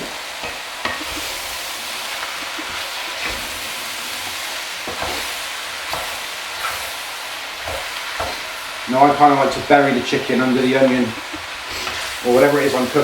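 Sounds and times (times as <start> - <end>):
chicken and onion sizzling in pan: 0.0 - 13.0
spoon scraping pan: 9.4 - 12.4.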